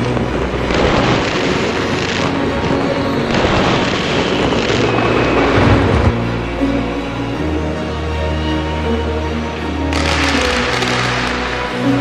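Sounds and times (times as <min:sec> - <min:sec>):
fireworks bursting and crackling: 0:00.0 - 0:06.2, 0:09.9 - 0:12.0.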